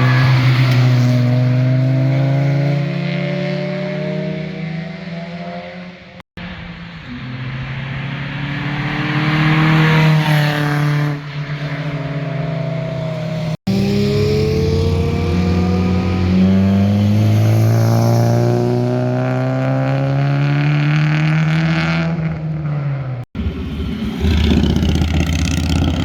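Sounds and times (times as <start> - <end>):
sports car accelerating past: 7.1 - 26.0.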